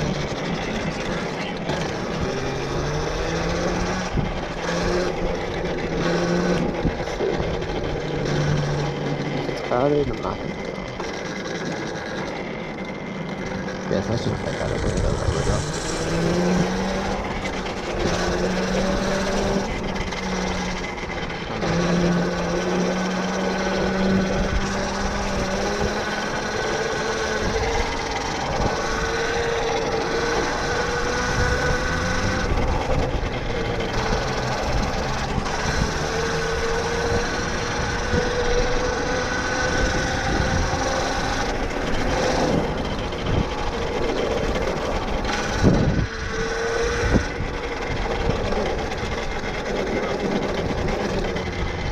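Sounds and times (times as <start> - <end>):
continuous rushing noise: 0.0 - 51.9
electric motor whine: 0.0 - 51.9.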